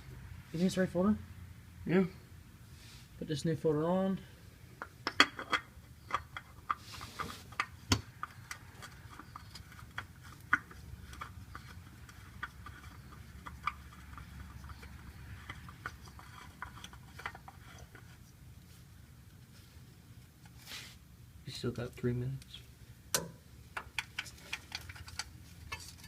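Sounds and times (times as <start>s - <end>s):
hands handling oil filter: 4.8s - 21.0s, 23.7s - 26.0s.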